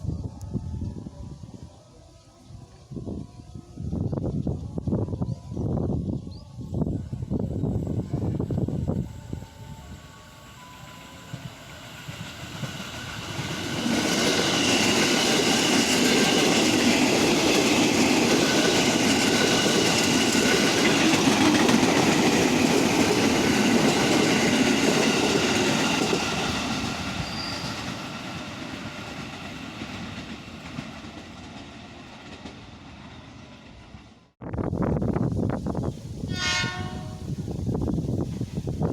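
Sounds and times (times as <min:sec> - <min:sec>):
train wheels clattering and squealing: 0:10.7 - 0:34.0.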